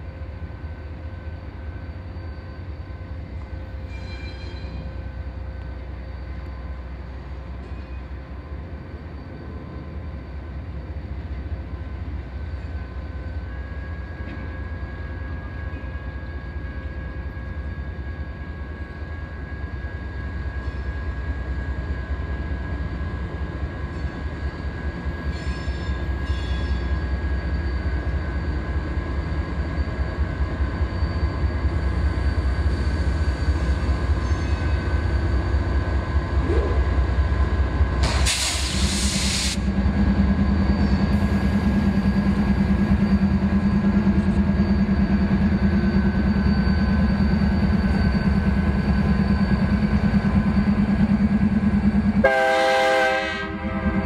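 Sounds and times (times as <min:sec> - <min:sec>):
diesel locomotives rumbling: 0:00.0 - 0:54.0
loud rushing hiss: 0:38.0 - 0:39.7.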